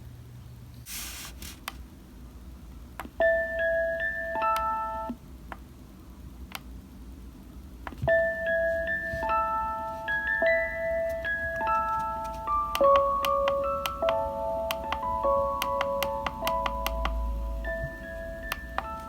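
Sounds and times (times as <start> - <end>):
brief hiss: 0.8 - 1.6.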